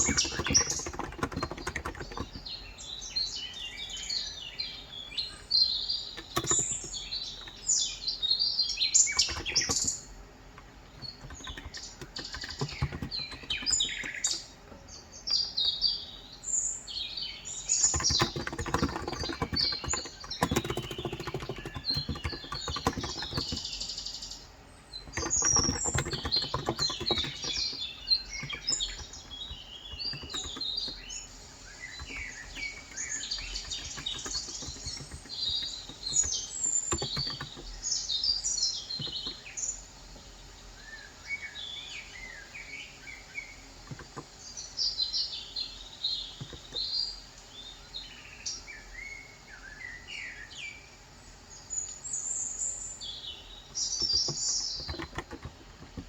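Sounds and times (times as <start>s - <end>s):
keyboard key clicks: 0.0s - 2.6s, 6.2s - 7.6s, 9.1s - 10.1s, 10.9s - 14.4s, 17.8s - 23.9s, 25.0s - 31.2s, 31.8s - 37.8s, 43.8s - 44.3s, 54.0s - 56.0s
birds chirping and twittering: 0.0s - 56.0s.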